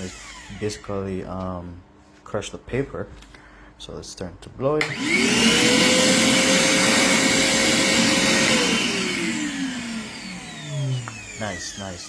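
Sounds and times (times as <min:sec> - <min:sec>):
vacuum motor whine: 0:04.8 - 0:12.0
vacuum winding down: 0:04.8 - 0:12.0.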